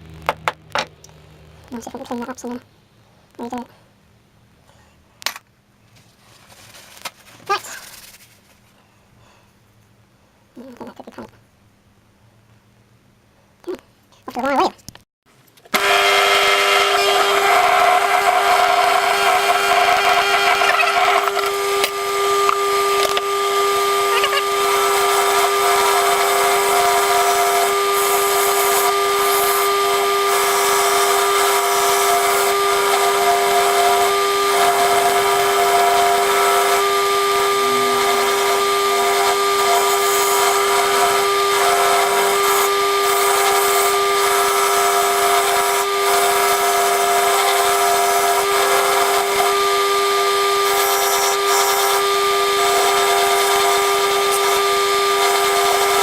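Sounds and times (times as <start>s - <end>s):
wire wheel motor humming: 15.7s - 56.0s.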